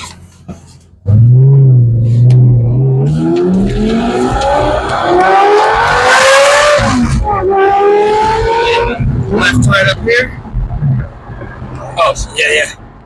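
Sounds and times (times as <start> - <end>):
sports car engine accelerating: 1.0 - 9.7.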